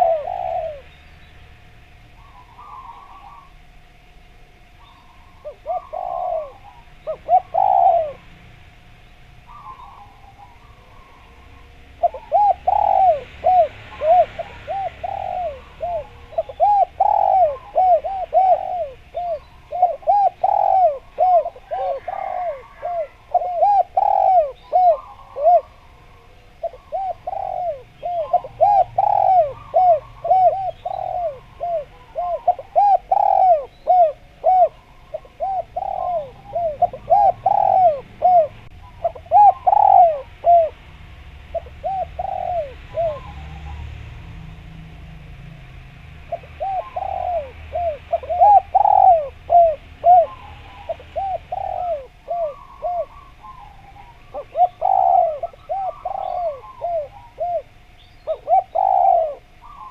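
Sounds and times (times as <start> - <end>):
dove cooing: 0.0 - 8.6, 9.2 - 45.4, 46.2 - 59.9.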